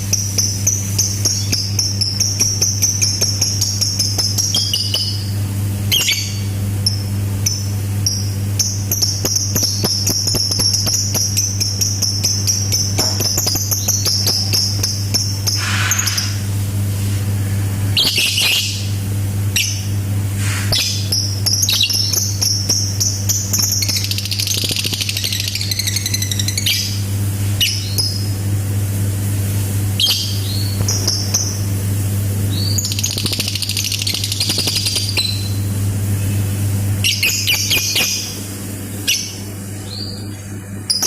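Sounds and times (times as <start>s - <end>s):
steady low hum: 0.0s - 41.0s
lovebird chirping and trilling: 0.1s - 5.3s, 5.9s - 16.5s, 17.9s - 18.9s, 19.5s - 19.9s, 20.7s - 27.0s, 27.6s - 28.3s, 30.0s - 31.7s, 32.5s - 35.7s, 37.0s - 38.4s, 39.0s - 41.0s.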